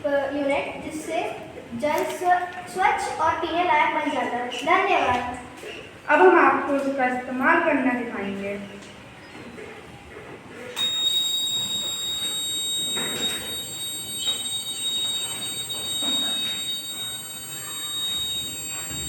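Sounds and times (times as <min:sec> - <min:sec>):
high-pitched electric tone: 0:10.8 - 0:19.0.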